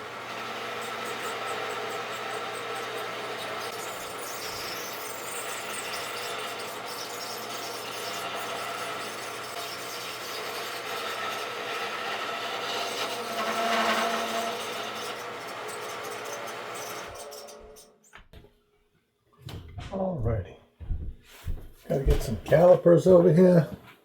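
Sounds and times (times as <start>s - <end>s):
lathe motor hum: 0.0s - 9.6s
turning tool scraping wood: 0.1s - 17.9s.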